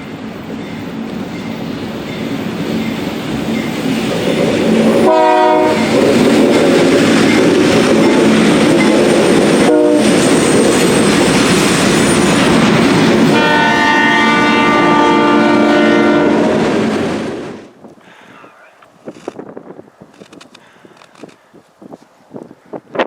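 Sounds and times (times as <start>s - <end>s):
freight train passing: 0.0s - 20.2s
locomotive horn blast: 5.0s - 6.1s, 9.6s - 10.2s, 13.3s - 16.7s.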